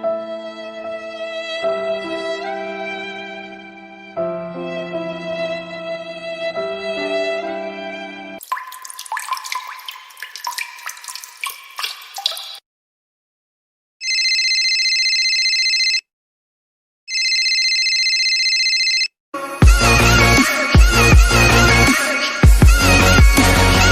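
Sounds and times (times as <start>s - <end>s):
water dripping and bubbling: 8.4s - 12.6s
telephone ringing: 14.0s - 16.0s, 17.1s - 19.1s.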